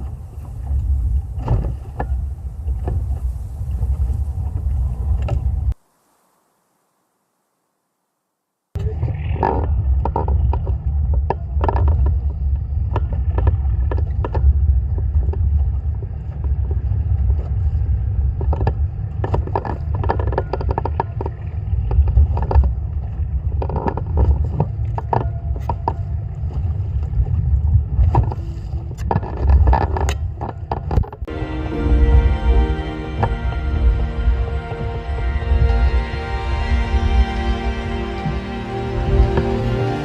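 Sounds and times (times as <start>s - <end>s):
boat motor rumbling: 31.3s - 40.0s.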